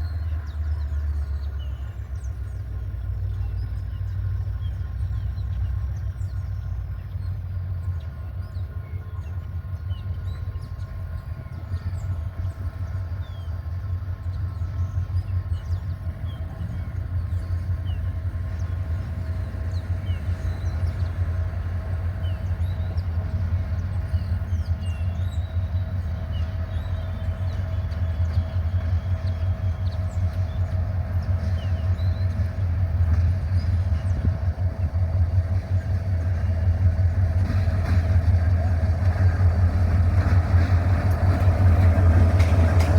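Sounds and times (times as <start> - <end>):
locomotive deep rumble: 0.0 - 42.9.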